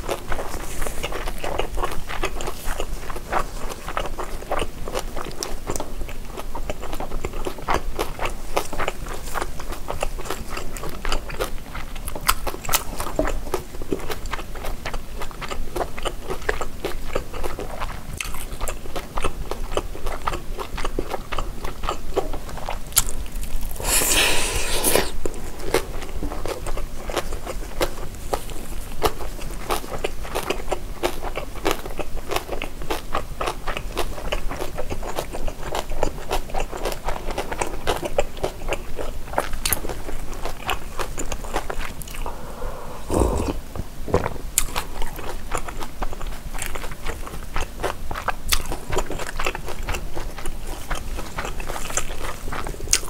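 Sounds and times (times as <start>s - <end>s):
biting and chewing meat: 0.0s - 53.0s.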